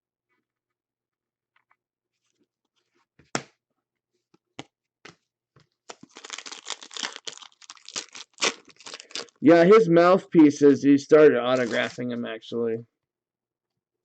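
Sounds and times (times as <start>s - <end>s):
card pack wrapper torn and crinkled: 5.9s - 9.4s, 11.5s - 12.0s.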